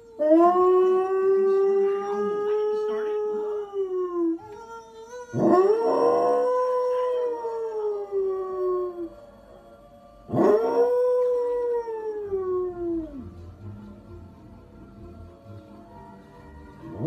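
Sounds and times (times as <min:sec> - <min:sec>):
dog howling: 0:00.0 - 0:09.2, 0:10.3 - 0:13.3.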